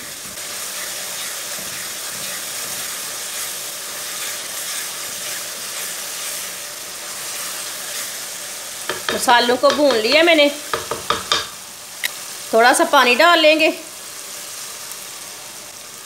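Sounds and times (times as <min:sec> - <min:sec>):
masala sizzling in oil: 0:00.0 - 0:16.0
wooden spoon stirring: 0:08.9 - 0:11.5.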